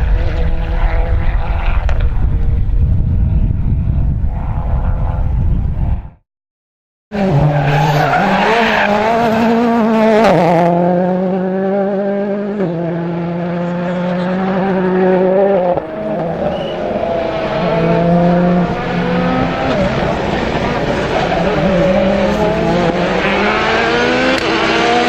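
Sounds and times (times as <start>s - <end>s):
rally car engine revving: 0.0s - 3.4s, 7.1s - 25.0s
tyres skidding and squealing: 7.2s - 9.8s, 15.8s - 25.0s.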